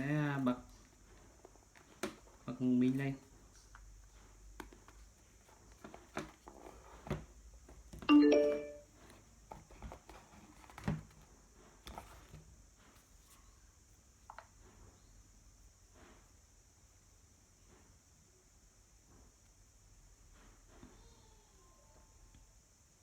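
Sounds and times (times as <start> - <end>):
electronic power-on chime: 8.1 - 8.8.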